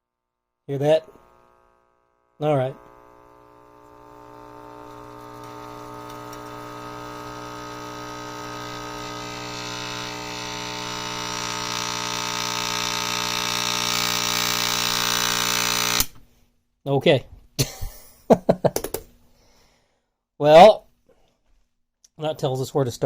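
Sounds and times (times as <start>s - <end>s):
radio mains hum: 0.7s - 16.0s.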